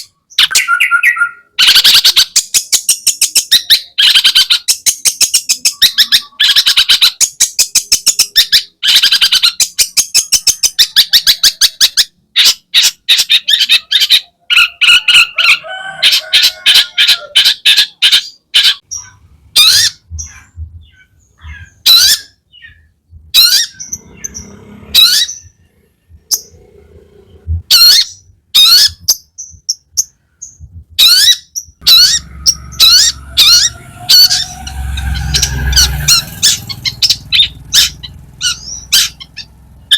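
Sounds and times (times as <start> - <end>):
shrike singing: 0.0 - 39.9
faint low hum: 18.9 - 31.1.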